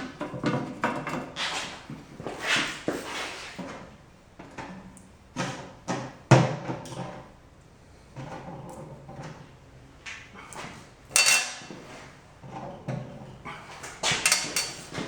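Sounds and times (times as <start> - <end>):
metal parts clinking and rattling: 14.3 - 14.9.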